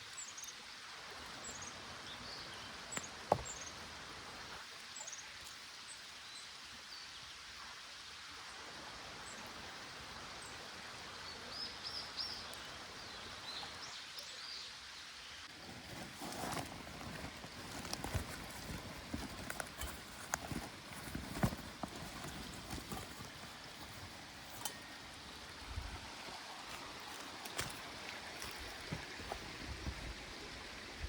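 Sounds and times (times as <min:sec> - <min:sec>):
stream rushing: 0:15.4 - 0:31.0.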